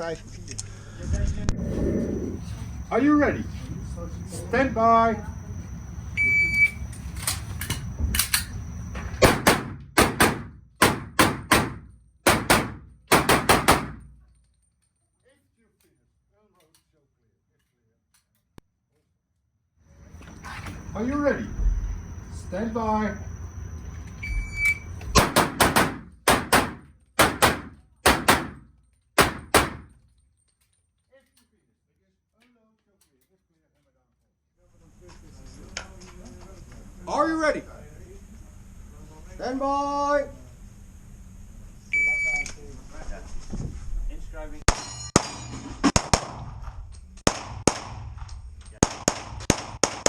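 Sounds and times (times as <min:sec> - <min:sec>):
handgun shots with ringing echo: 0:09.2 - 0:14.2, 0:25.2 - 0:29.9
rapid pistol fire: 0:09.2 - 0:14.2, 0:25.2 - 0:29.9, 0:45.8 - 0:46.5, 0:47.2 - 0:48.1, 0:48.8 - 0:50.0.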